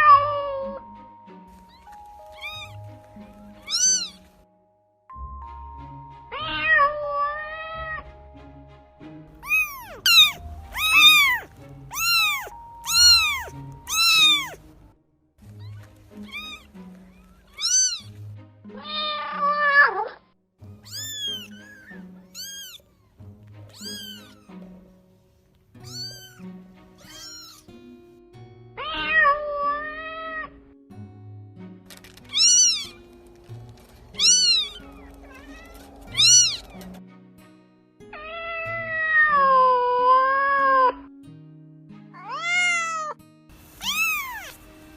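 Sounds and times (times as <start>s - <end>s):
soft background music: 0.0s - 44.9s
cats meowing: 1.6s - 4.3s, 6.3s - 8.0s, 9.4s - 14.7s, 15.5s - 18.2s, 18.8s - 24.8s, 25.8s - 27.8s, 28.8s - 30.6s, 32.3s - 33.0s, 33.9s - 37.0s, 38.2s - 41.0s, 42.2s - 43.2s, 43.8s - 44.7s.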